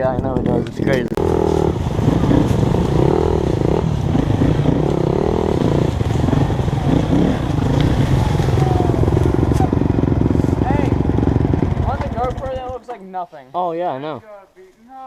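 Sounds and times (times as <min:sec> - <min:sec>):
dirt bike engine revving: 0:01.1 - 0:12.9.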